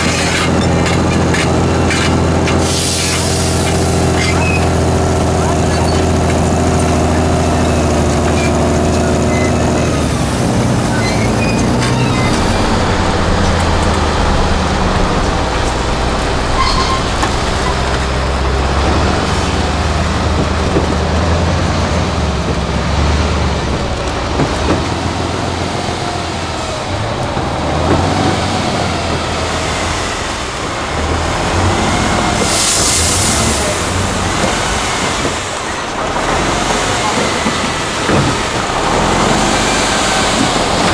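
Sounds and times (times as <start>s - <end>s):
diesel truck engine revving: 0.0s - 40.9s
burst of hiss: 2.5s - 8.7s, 29.6s - 35.8s.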